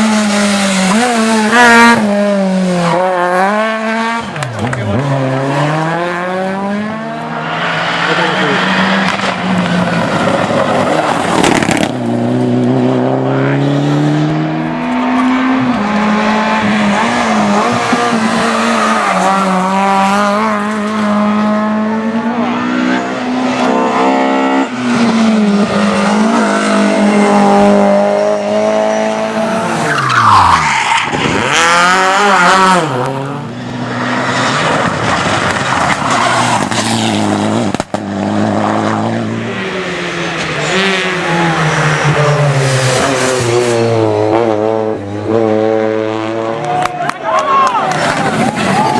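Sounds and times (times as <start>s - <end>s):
rally car engine at full throttle: 0.0s - 48.9s
tyres squealing and skidding: 14.7s - 20.0s, 28.9s - 31.8s, 33.9s - 37.0s.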